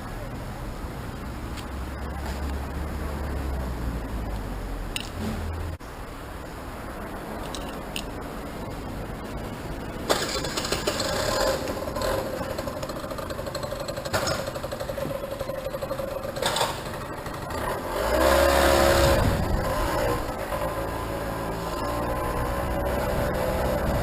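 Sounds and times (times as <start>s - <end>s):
small engine running and revving: 10.3s - 24.0s.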